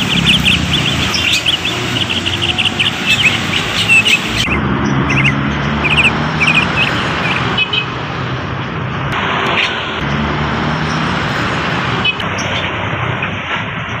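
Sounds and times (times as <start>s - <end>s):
bird chirping: 0.0s - 7.9s.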